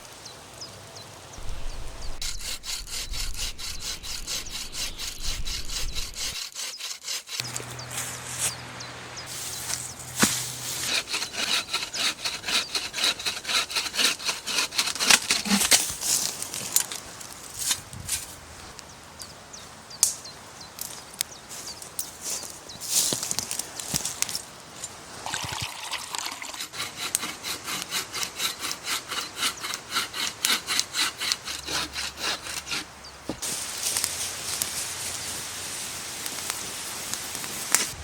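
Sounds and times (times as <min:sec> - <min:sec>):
hand saw cutting wood: 0:01.4 - 0:08.6, 0:09.3 - 0:16.8, 0:26.4 - 0:33.5.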